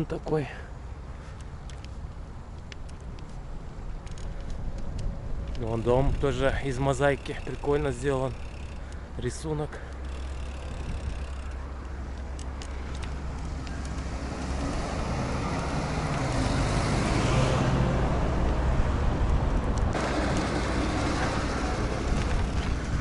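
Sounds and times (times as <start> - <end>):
low traffic rumble: 0.0 - 23.0
vehicle passing by: 12.7 - 23.0.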